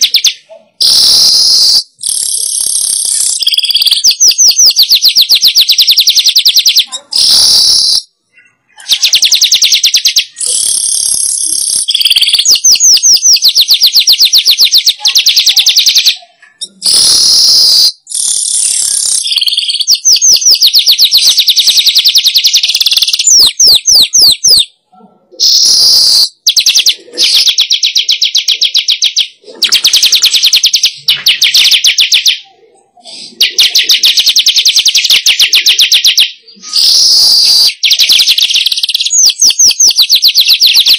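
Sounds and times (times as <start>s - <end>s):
bird chattering song: 0.0s - 24.8s, 25.4s - 40.9s.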